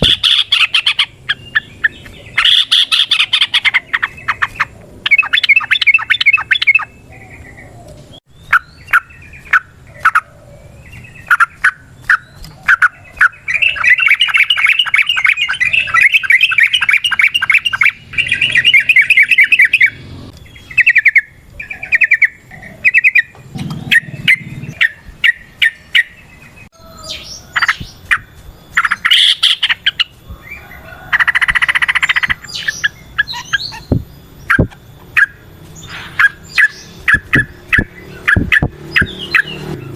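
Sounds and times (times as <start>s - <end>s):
bird singing bubbly chirps: 0.0s - 30.6s, 31.2s - 39.9s.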